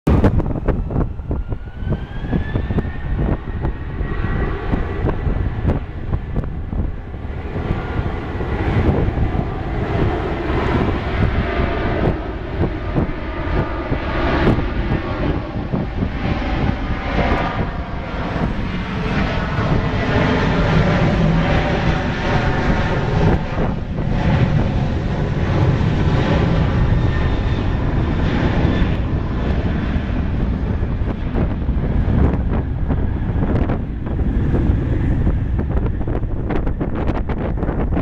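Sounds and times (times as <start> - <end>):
jet engines roaring at takeoff: 0.0 - 38.0.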